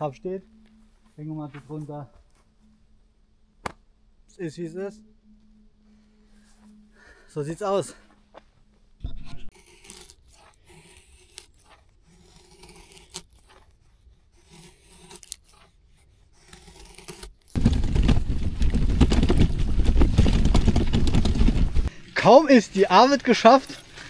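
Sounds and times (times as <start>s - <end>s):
handling scrapes and clicks: 9.5s - 17.6s.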